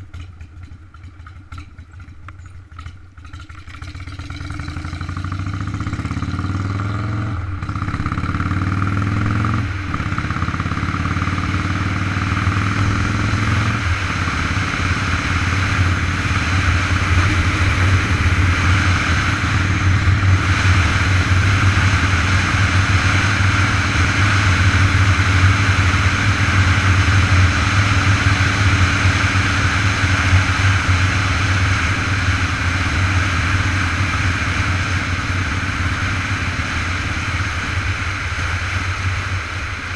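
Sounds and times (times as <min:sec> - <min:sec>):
motorcycle engine accelerating: 0:00.0 - 0:39.9
wind noise: 0:08.9 - 0:39.9.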